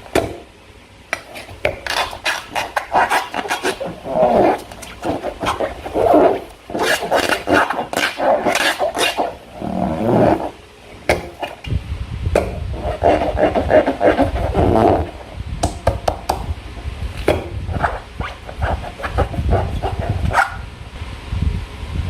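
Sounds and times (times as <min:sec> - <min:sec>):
slime squelching: 0:01.2 - 0:11.7, 0:12.7 - 0:15.3.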